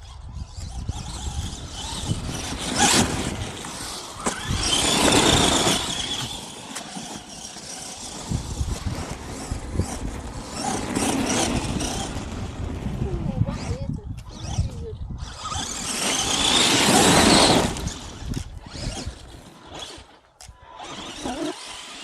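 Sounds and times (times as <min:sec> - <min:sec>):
wind on microphone: 0:00.0 - 0:06.6, 0:07.8 - 0:21.4
toy truck electric motors whining: 0:00.0 - 0:22.0.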